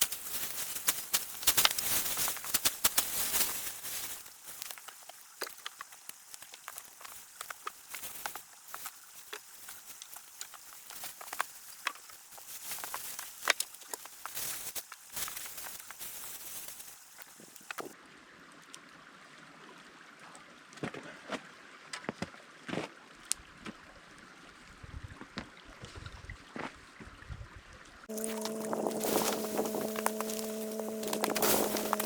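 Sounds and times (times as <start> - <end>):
campfire crackling and popping: 4.2 - 16.0, 28.1 - 32.0.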